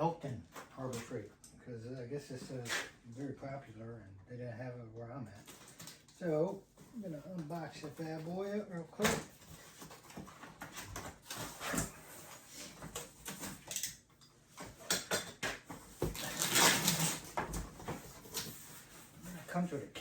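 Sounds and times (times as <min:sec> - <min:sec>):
packaging rustling: 0:15.9 - 0:18.7.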